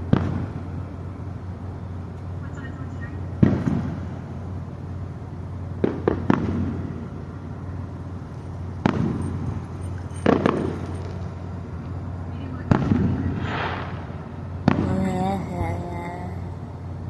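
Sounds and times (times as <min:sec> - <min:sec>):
fireworks bangs with echo: 0:00.0 - 0:00.6, 0:03.4 - 0:04.2, 0:05.8 - 0:07.2, 0:08.7 - 0:11.3, 0:12.7 - 0:15.1.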